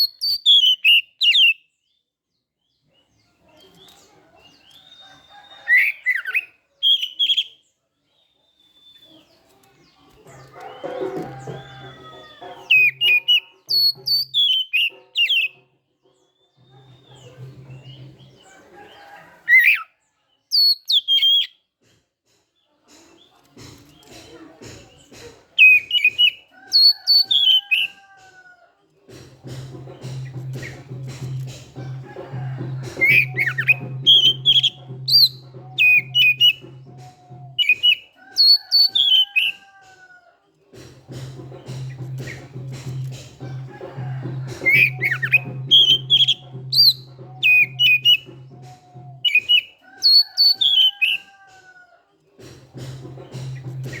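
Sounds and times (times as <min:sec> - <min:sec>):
bird singing whistled notes: 0:00.0 - 0:01.7, 0:03.8 - 0:07.6, 0:12.7 - 0:15.6, 0:20.5 - 0:21.6, 0:33.0 - 0:36.7, 0:37.5 - 0:39.5, 0:44.7 - 0:51.2
background music: 0:10.1 - 0:19.4, 0:29.2 - 0:40.2, 0:40.8 - 0:54.0.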